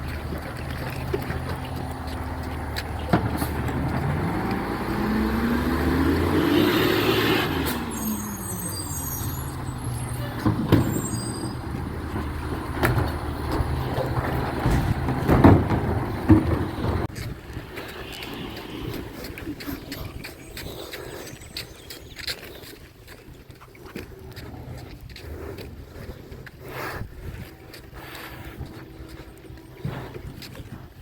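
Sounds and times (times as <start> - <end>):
diesel engine hum: 0.0 - 22.2.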